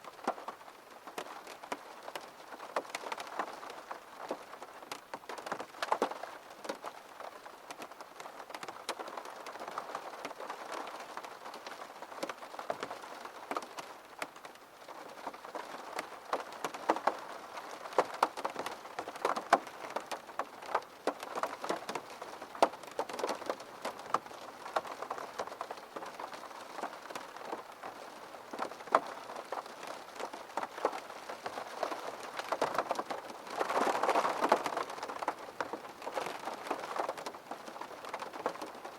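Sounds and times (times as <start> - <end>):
rain pattering on a window: 0.0 - 38.9.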